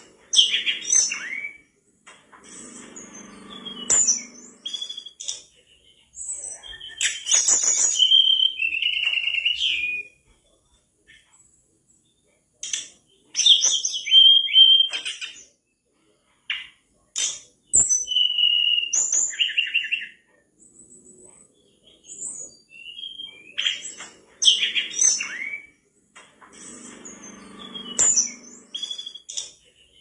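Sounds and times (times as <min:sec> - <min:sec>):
bird singing whistled phrases: 0:00.4 - 0:01.7, 0:03.2 - 0:05.4, 0:06.4 - 0:10.2, 0:13.4 - 0:15.3, 0:17.8 - 0:20.2, 0:22.1 - 0:25.8, 0:27.2 - 0:29.6.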